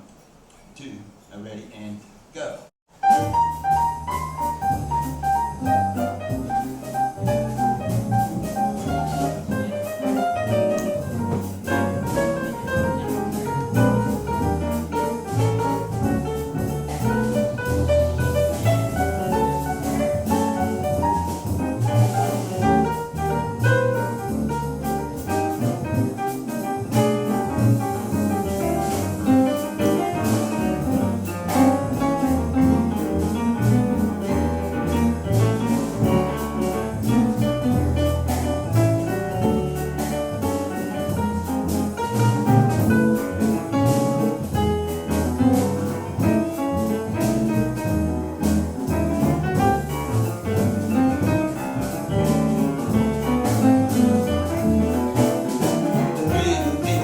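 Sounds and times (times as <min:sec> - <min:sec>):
piano: 0:00.0 - 0:00.7, 0:02.9 - 0:57.0
drums: 0:02.9 - 0:57.0
walking double bass: 0:02.9 - 0:57.0.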